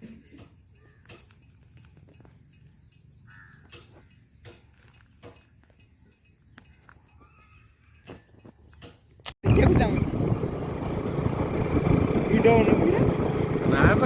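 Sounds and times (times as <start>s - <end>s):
cricket trill: 0.0s - 9.4s.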